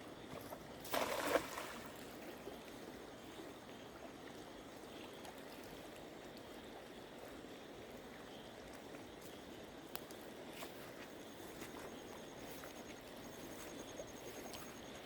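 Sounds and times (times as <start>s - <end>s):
water splash: 0.8s - 2.1s.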